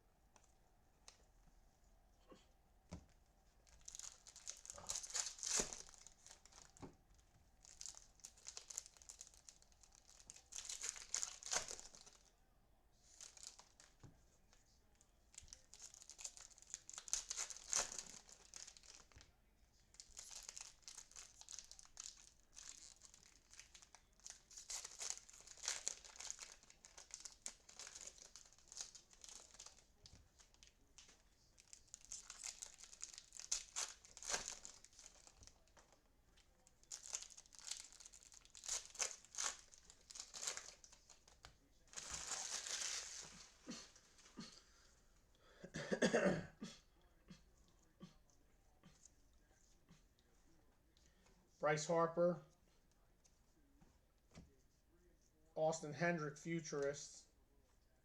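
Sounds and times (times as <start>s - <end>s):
foil wrappers crinkling and tearing: 3.6s - 6.8s, 7.6s - 12.3s, 13.0s - 14.7s, 15.3s - 19.3s, 19.9s - 35.9s, 36.6s - 44.4s.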